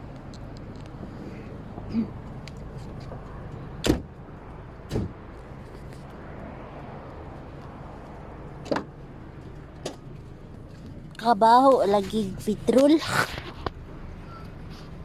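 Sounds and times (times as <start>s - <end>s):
car doors shutting: 3.8s - 4.1s, 4.9s - 5.2s.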